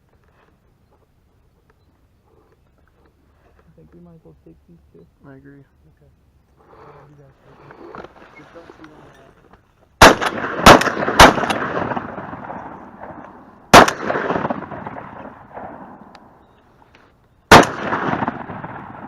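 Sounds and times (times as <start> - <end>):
shotgun blasts with echo: 10.0 - 16.4, 17.5 - 19.0.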